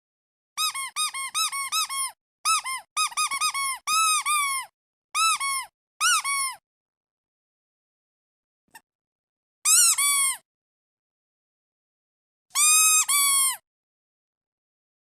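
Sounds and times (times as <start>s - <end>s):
rubber duck toy squeaking: 0.6s - 6.6s, 9.7s - 10.4s, 12.6s - 13.6s.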